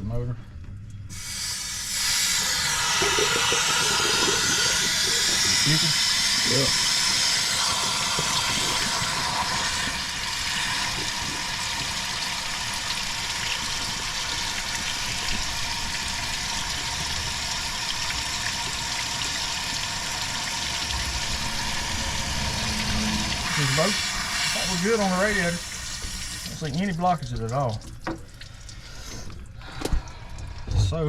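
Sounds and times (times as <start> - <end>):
water rushing out: 18.2 - 27.8.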